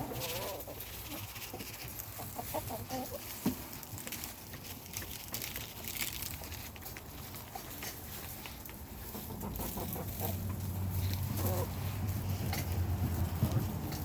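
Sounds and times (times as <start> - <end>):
chickens clucking softly: 0.0 - 3.3, 8.9 - 11.8.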